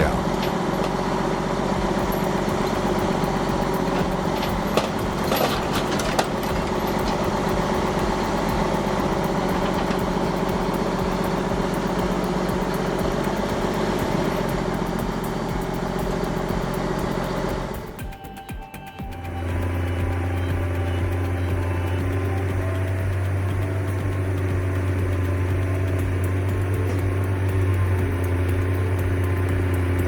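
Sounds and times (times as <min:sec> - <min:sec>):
truck engine idling: 0:00.0 - 0:18.1, 0:19.1 - 0:30.0.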